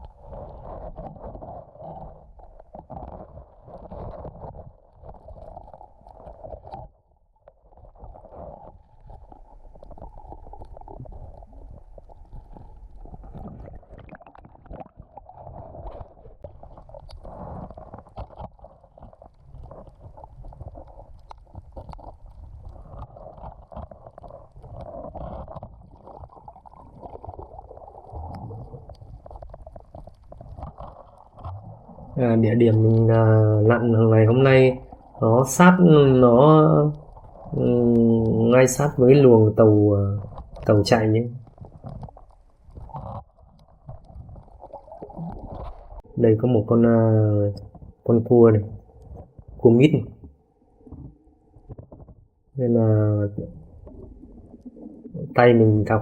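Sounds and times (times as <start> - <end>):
muffled underwater rumble: 0.0 - 56.0.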